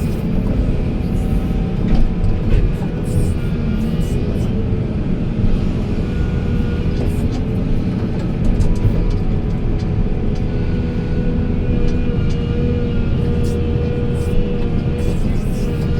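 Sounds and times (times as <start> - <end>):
diesel engine drone: 0.0 - 15.9.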